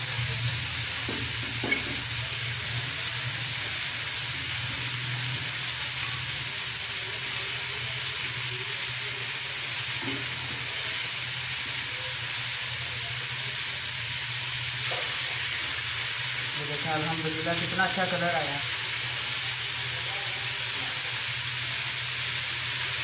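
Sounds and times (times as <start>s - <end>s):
meat sizzling in hot oil: 0.0s - 23.0s.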